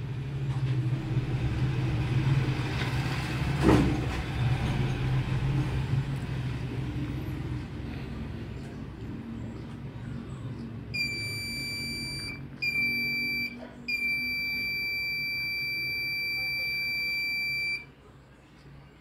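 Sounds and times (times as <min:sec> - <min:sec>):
high-pitched electronic beep: 0:11.0 - 0:17.9.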